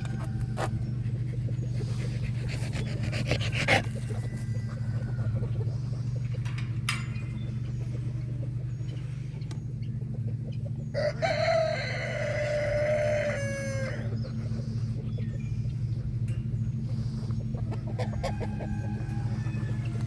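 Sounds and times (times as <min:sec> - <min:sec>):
rooster crowing: 0:00.0 - 0:00.9, 0:04.0 - 0:05.6, 0:10.9 - 0:14.2, 0:17.7 - 0:20.0
steady low hum: 0:00.0 - 0:20.0.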